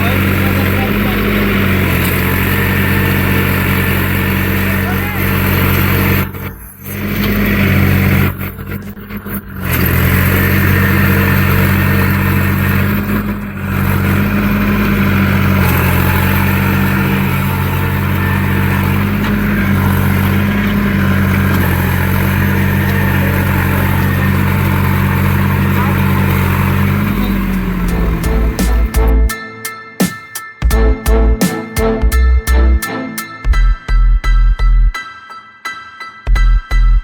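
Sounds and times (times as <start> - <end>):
tractor diesel engine running: 0.0 - 29.4, 30.0 - 33.7.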